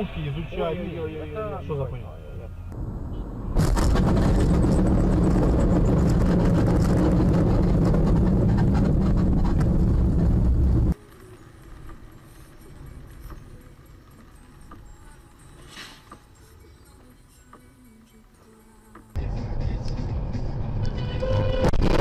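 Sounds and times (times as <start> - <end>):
vehicle rumble with hiss: 8.3 - 21.7.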